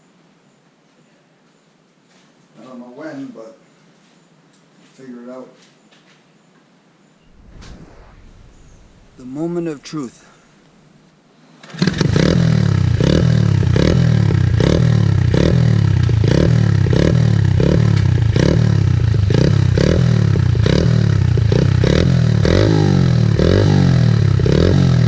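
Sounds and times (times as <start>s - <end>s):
motorcycle engine revving: 11.7s - 25.0s.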